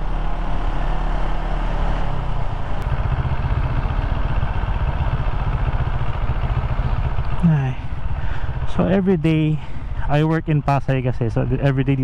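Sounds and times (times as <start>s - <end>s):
motorcycle engine pulsing: 2.8s - 10.8s.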